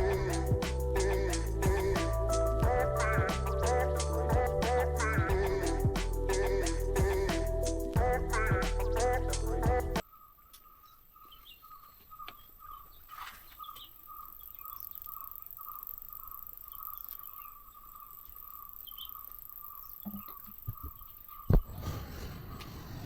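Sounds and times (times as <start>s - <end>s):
faint bird chirps: 10.0s - 23.0s.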